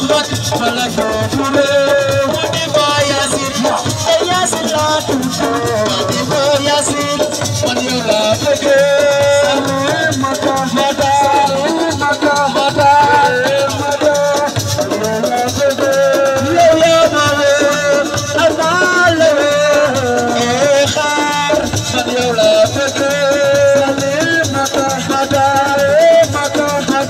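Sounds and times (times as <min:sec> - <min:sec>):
drum pattern: 0:00.0 - 0:27.0
person singing: 0:00.0 - 0:27.0.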